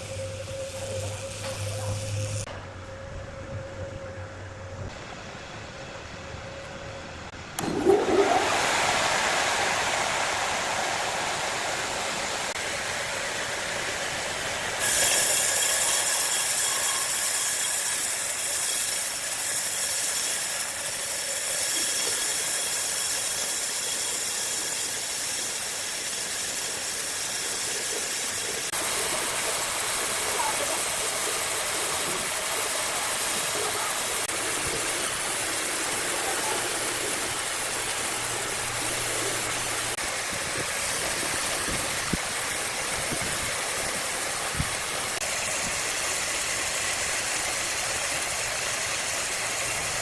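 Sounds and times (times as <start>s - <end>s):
wood saw machine hissing: 0.0s - 2.5s, 7.4s - 50.0s.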